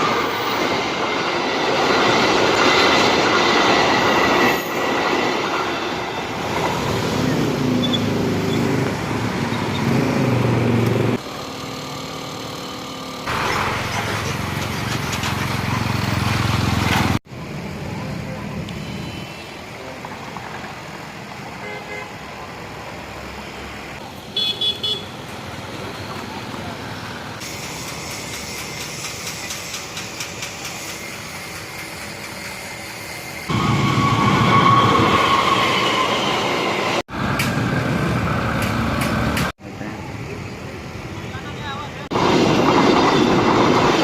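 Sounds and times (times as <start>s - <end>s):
train rumbling past: 0.0s - 18.4s, 25.2s - 44.0s
road traffic noise: 0.0s - 44.0s
wheels clicking over rail joints: 13.3s - 17.2s
vehicle horn beeps: 18.7s - 19.6s, 24.1s - 25.1s.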